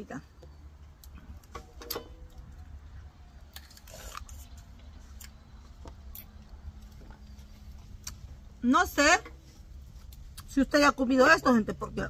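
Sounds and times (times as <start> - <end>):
low steady rumble: 0.0 - 12.0
mouth chewing and sucking fruit: 3.5 - 8.5, 9.6 - 10.6.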